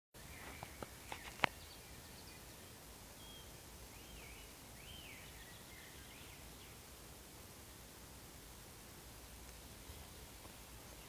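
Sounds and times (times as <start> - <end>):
songbirds singing: 0.2 - 6.9, 9.4 - 11.0.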